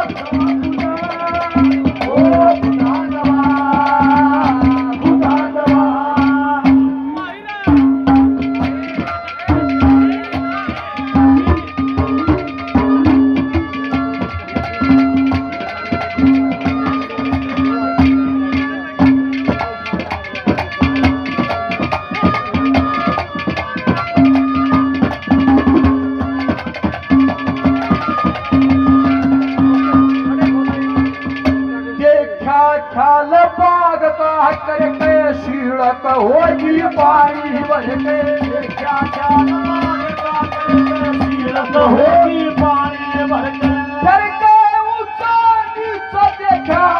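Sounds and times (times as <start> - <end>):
fast hand drum rhythm: 0.0 - 32.6, 33.4 - 46.9
melody of held notes: 0.0 - 46.9.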